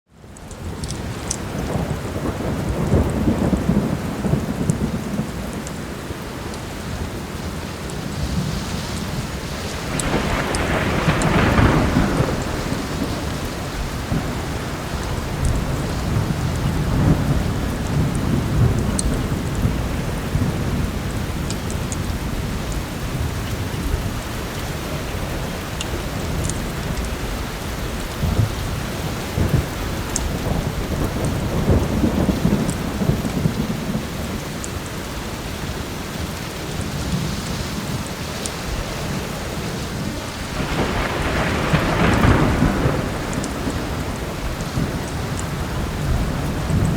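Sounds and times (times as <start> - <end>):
heavy rain: 0.1 - 46.9
thunder rolling: 1.5 - 5.9, 8.2 - 24.2, 28.0 - 34.6, 39.0 - 46.9.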